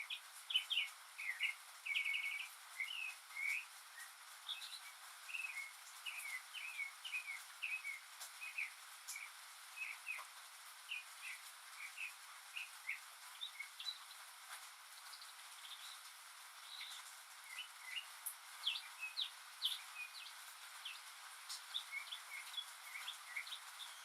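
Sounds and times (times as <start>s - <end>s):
rain hiss: 0.0s - 24.0s.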